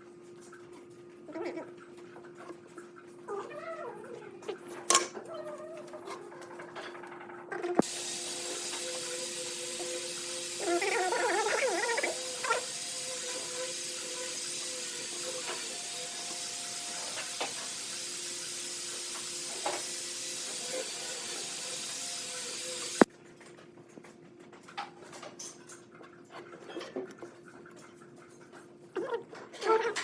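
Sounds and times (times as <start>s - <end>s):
steady hiss: 7.8s - 23.1s.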